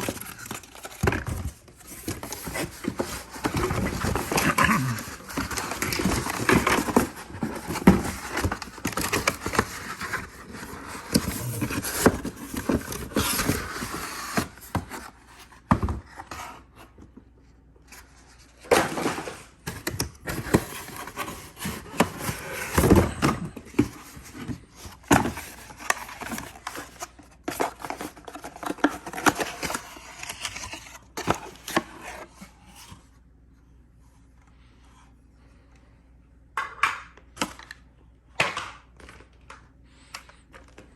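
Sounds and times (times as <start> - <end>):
packaging and plastic handling: 0.0 - 16.6, 17.9 - 32.9.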